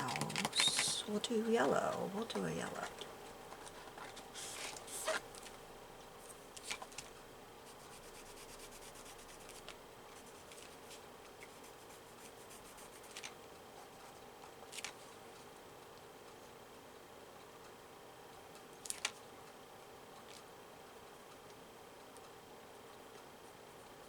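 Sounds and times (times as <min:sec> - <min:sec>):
pencil scratching on paper: 0:07.7 - 0:09.6.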